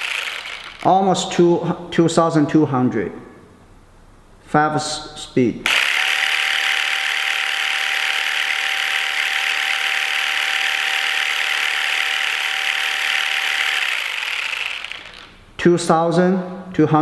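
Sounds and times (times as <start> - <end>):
massage gun motor whining: 0.0 - 0.9, 5.7 - 15.4.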